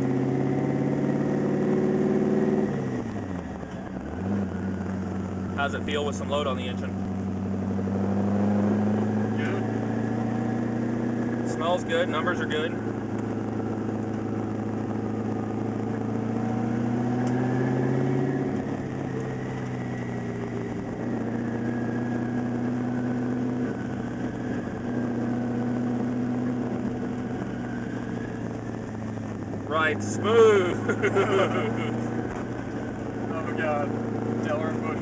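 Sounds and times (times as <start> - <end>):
car engine running at low speed: 0.0 - 35.0.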